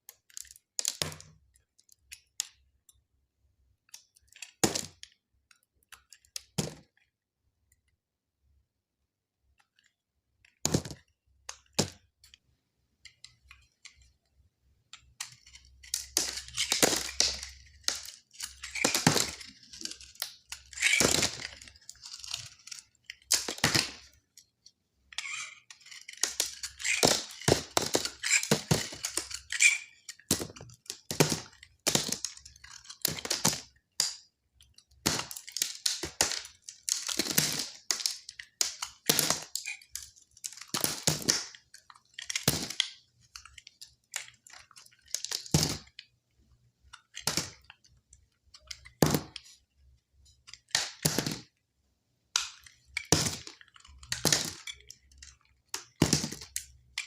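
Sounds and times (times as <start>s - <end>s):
knife cutting dry soap: 15.0s - 24.0s, 25.1s - 33.7s.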